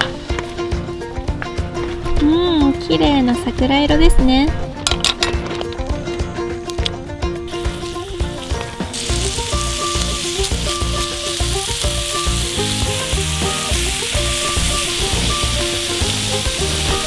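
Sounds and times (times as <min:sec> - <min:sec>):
background music: 0:00.0 - 0:17.0
food sizzling on a griddle: 0:07.5 - 0:17.0.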